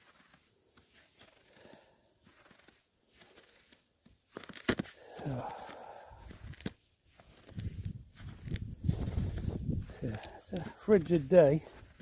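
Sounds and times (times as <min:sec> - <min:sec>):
faint soft rustles: 0:06.2 - 0:12.0.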